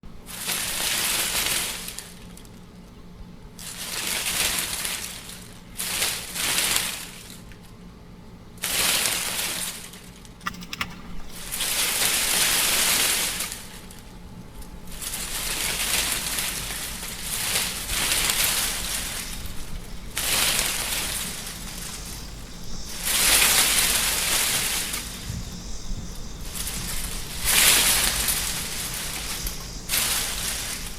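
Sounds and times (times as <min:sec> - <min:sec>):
wind gusts: 0:18.4 - 0:30.9.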